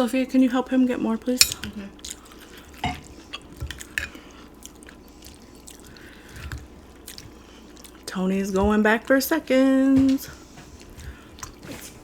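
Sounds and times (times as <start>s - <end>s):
person chewing food: 1.4s - 9.1s, 10.2s - 12.0s.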